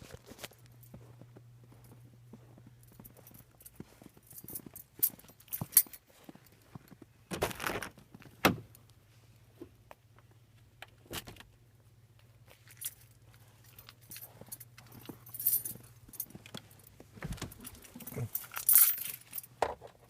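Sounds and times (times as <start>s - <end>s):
low steady hum: 0.0s - 20.0s
keys jangling and clicking: 1.8s - 6.6s, 12.5s - 19.6s.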